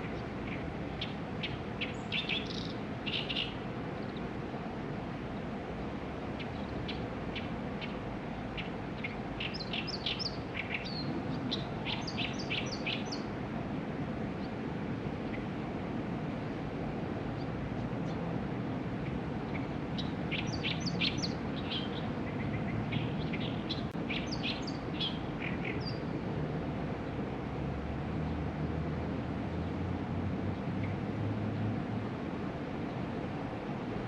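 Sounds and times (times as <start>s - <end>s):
small songbirds chirping: 0.0s - 4.4s, 5.2s - 13.4s, 15.2s - 15.6s, 18.9s - 26.3s
low background hiss: 0.0s - 34.0s.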